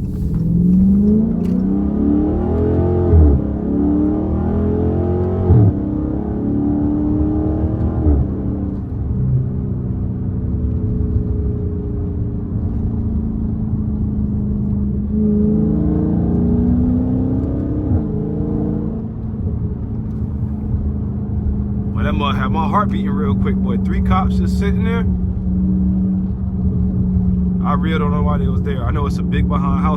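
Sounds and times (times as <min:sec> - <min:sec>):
car engine accelerating: 0:00.0 - 0:29.9.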